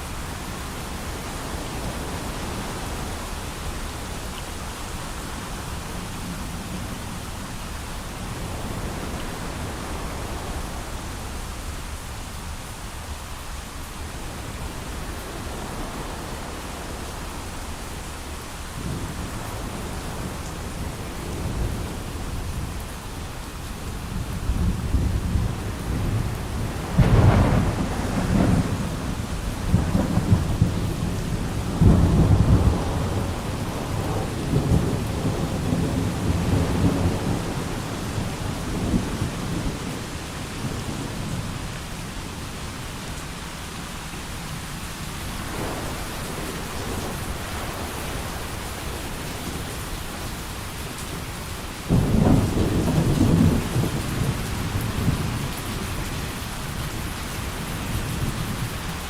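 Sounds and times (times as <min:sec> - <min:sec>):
heavy rain: 0:00.0 - 0:59.0
rolling thunder: 0:24.2 - 0:41.4, 0:45.3 - 0:50.5, 0:51.8 - 0:56.1.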